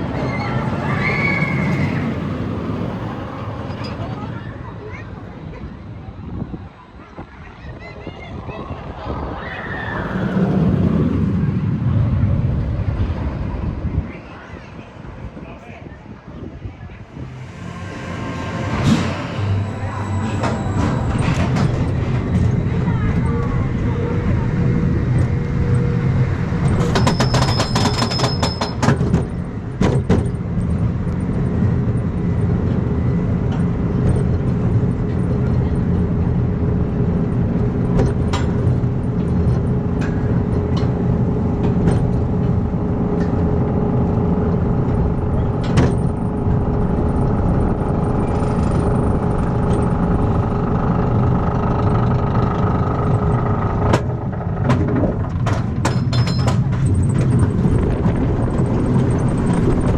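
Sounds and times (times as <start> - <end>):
roller coaster clicks: 0.0 - 5.0, 18.7 - 59.9
roller coaster train rumbling: 0.0 - 59.9.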